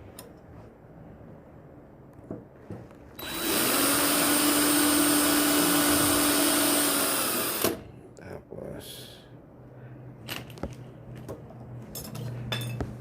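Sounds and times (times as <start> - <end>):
electric drill running: 3.2 - 7.8.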